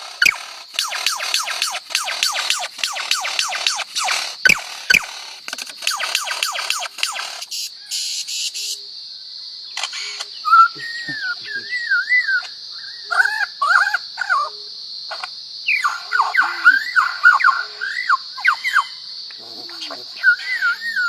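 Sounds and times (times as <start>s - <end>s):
steady high hiss: 0.0s - 9.0s
bird whistles and chirps: 10.1s - 14.4s, 20.2s - 21.0s.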